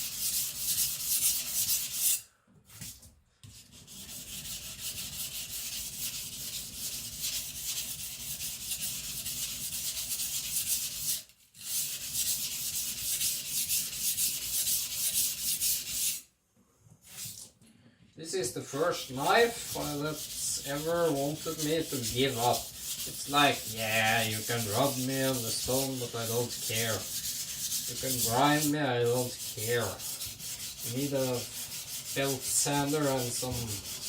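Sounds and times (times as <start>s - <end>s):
knife scraping on whetstone: 18.9s - 34.0s.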